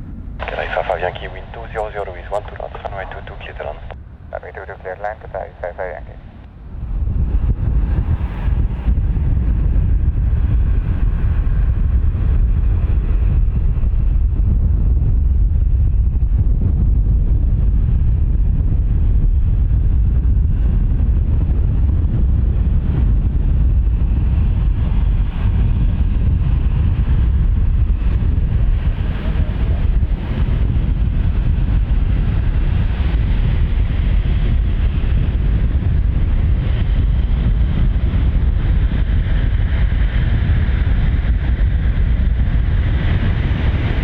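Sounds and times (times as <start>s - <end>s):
jet engines rumbling: 0.0s - 44.0s
wind buffeting microphone: 0.0s - 44.0s
high jet whine: 0.4s - 6.5s.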